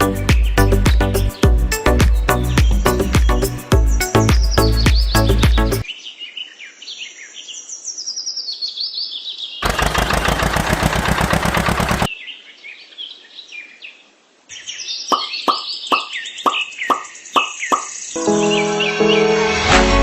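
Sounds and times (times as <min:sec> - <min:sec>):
birds chirping: 0:00.0 - 0:19.3
loud fast rattling: 0:09.6 - 0:12.1.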